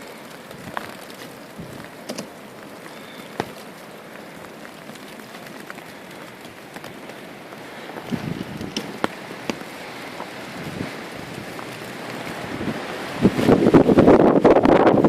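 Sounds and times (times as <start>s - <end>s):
blizzard wind blowing: 0.0s - 15.0s
snow ticking against camera: 0.0s - 15.0s
wind gust buffeting microphone: 7.6s - 15.0s.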